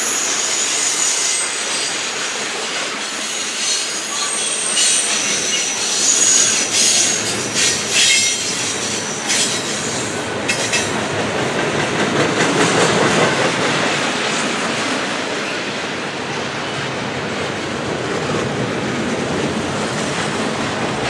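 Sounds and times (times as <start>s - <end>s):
freight cars rumbling on rails: 1.4s - 21.0s
high-pitched wheel squeal: 3.3s - 10.1s.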